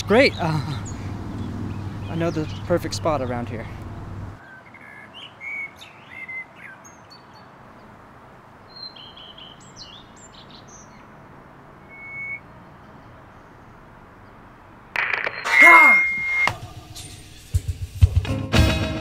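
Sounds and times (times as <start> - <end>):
birds chirping: 0.0 - 17.5.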